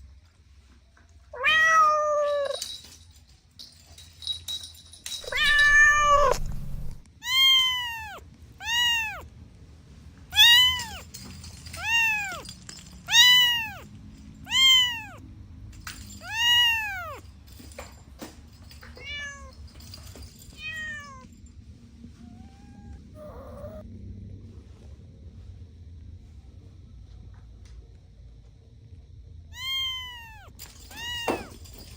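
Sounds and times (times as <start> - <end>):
kitten meowing: 1.4 - 2.6, 5.2 - 9.2, 10.3 - 11.0, 11.8 - 12.4, 13.1 - 13.9, 14.5 - 15.2, 16.2 - 17.2, 22.2 - 23.8, 29.6 - 31.5.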